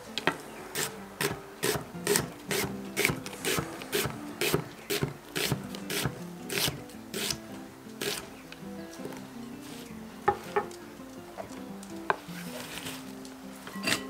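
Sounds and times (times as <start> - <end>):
knife slicing onion on wooden board: 0.8 - 7.4, 8.0 - 8.3.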